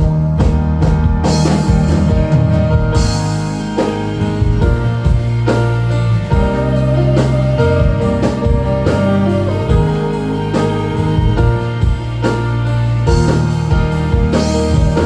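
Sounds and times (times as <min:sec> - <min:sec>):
bass line: 0:00.0 - 0:15.0
drum kit: 0:00.0 - 0:15.0
held chords: 0:00.0 - 0:15.0.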